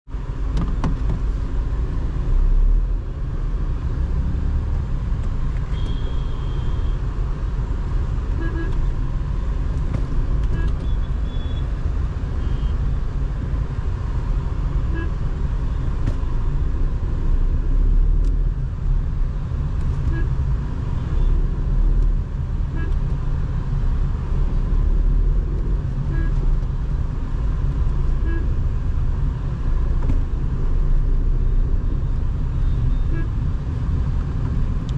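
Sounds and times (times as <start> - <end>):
car engine and road rumble: 0.0 - 34.9
car horn toots: 5.7 - 7.0, 8.4 - 8.9, 22.7 - 23.0.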